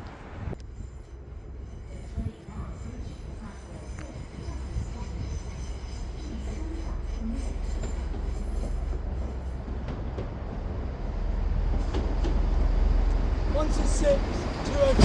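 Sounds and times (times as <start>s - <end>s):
diesel train rumbling past: 0.0s - 15.0s.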